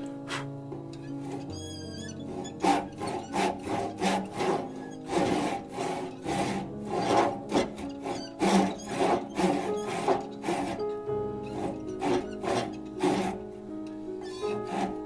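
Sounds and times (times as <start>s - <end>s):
background music: 0.0s - 15.0s
hand tool working wood: 0.0s - 15.0s.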